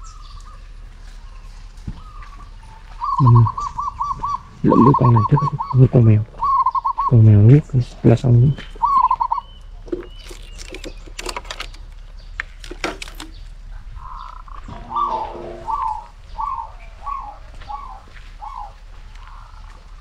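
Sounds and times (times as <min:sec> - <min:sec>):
bird calling: 0:00.0 - 0:20.0
handling clicks and rustles: 0:09.8 - 0:13.8.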